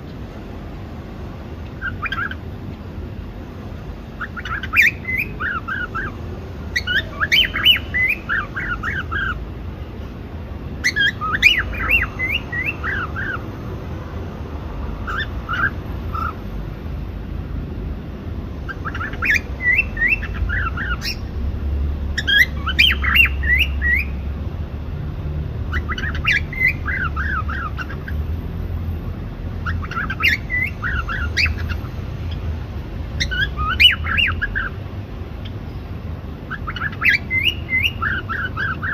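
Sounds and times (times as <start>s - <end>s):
cockatiel chirping and whistling: 1.8s - 2.4s, 4.2s - 9.4s, 10.8s - 13.4s, 15.0s - 16.4s, 18.7s - 21.3s, 22.2s - 24.2s, 25.7s - 28.2s, 29.6s - 32.4s, 33.2s - 34.7s, 36.5s - 38.9s.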